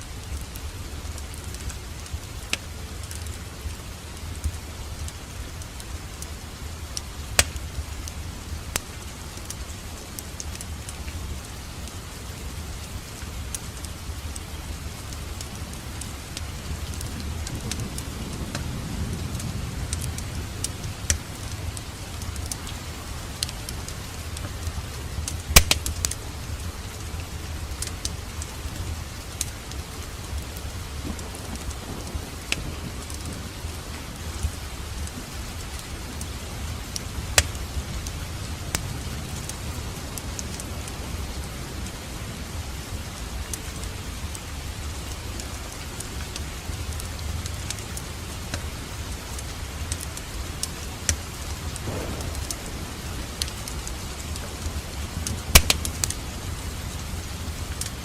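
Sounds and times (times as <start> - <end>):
wood fire crackling: 0.0 - 58.0
loud wood cracks: 25.5 - 26.2, 51.8 - 56.3.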